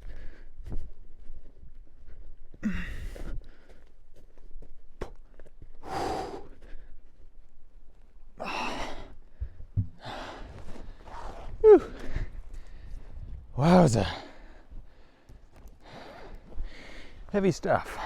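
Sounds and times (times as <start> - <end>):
man breathing hard: 0.0 - 0.9, 2.0 - 3.9, 5.7 - 7.2, 8.4 - 11.0, 11.7 - 17.3
dull low thuds: 9.3 - 10.2
man grunting: 13.6 - 14.2.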